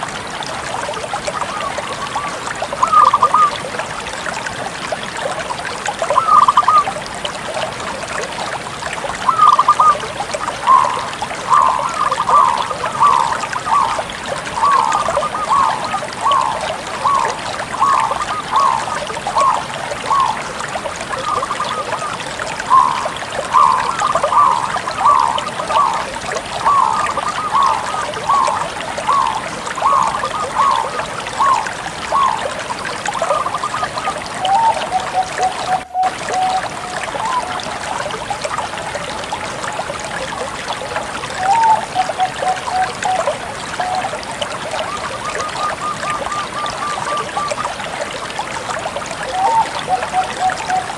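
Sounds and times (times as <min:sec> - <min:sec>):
dove cooing: 0:02.8 - 0:03.5, 0:06.2 - 0:06.8, 0:09.3 - 0:10.0, 0:10.6 - 0:14.0, 0:14.6 - 0:20.4, 0:22.7 - 0:26.0.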